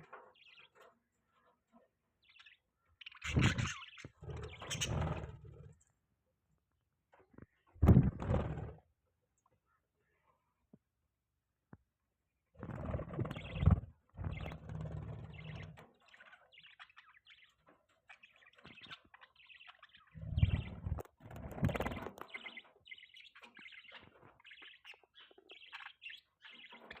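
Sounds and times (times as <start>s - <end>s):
budgerigars chirping: 2.3s - 5.2s, 15.3s - 27.0s.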